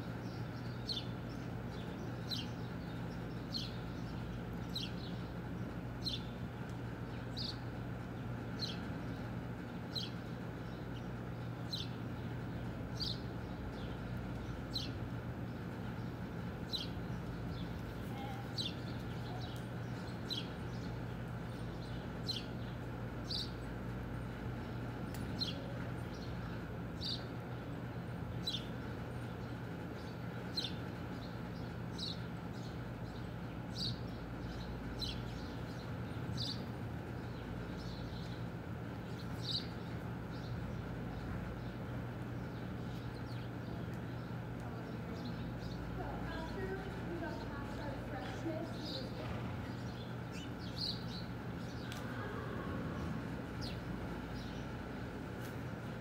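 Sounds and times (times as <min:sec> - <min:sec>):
steady low hum: 0:00.0 - 0:56.0
small bird chirping: 0:42.4 - 0:55.6.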